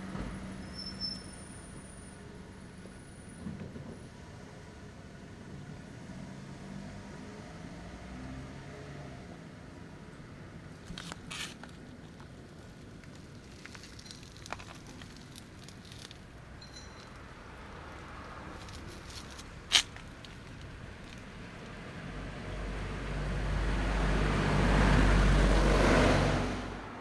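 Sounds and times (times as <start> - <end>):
motor vehicle passing by: 6.2 - 9.4, 17.1 - 27.0.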